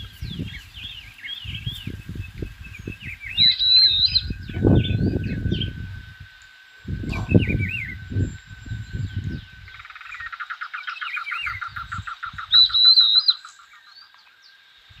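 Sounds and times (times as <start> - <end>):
low rumbling noise: 0.0 - 10.4
birds chirping and singing: 0.0 - 15.0
faint steady high tone: 0.4 - 15.0.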